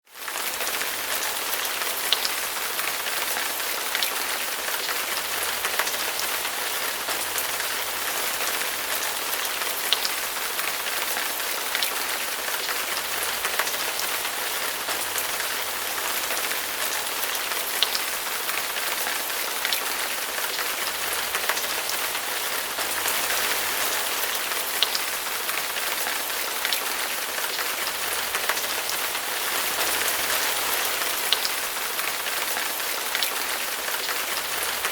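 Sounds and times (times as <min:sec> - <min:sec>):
steady rain hiss: 0:00.2 - 0:34.9.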